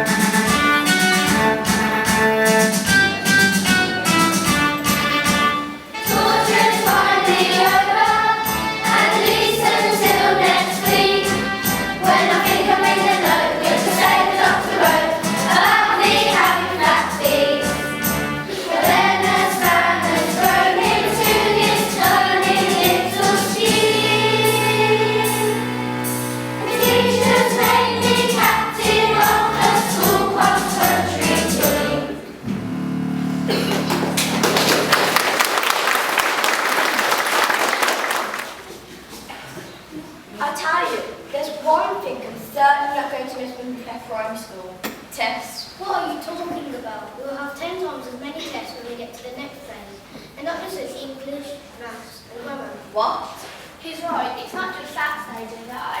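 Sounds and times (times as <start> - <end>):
instrumental accompaniment: 0.0 - 35.4
choir singing: 6.0 - 33.7.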